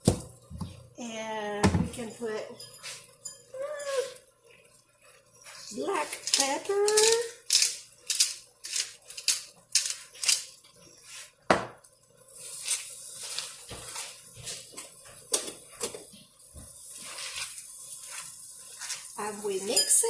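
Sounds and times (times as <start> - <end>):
beans sizzling: 0.0 - 20.0
spoon scraping frying pan: 1.9 - 11.4, 12.4 - 20.0
spoon clinking against pan: 19.6 - 20.0.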